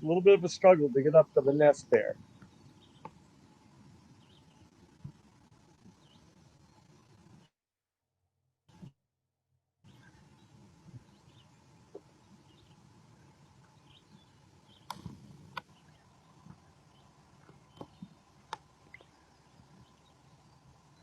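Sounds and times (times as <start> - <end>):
low steady hiss: 0.0 - 7.4, 9.9 - 21.0
bird chirps: 1.4 - 3.3, 4.1 - 4.7, 9.9 - 21.0
sharp clicks: 14.8 - 15.7.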